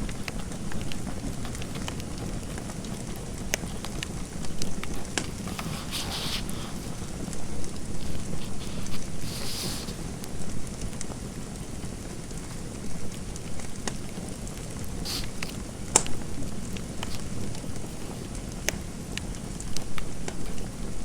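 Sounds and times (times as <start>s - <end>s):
fire crackling and popping: 0.0s - 21.0s
pen scratching while writing: 3.0s - 10.2s, 14.9s - 18.3s.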